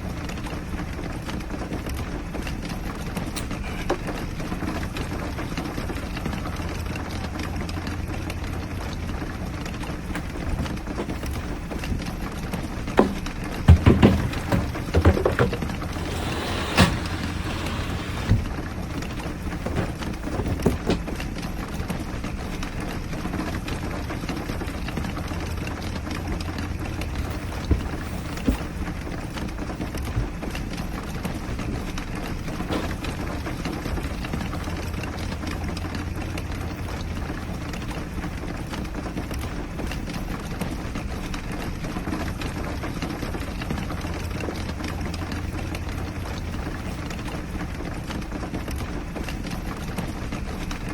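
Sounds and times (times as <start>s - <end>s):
rain on camper roof: 0.0s - 50.9s
sharp knocks: 12.9s - 18.4s.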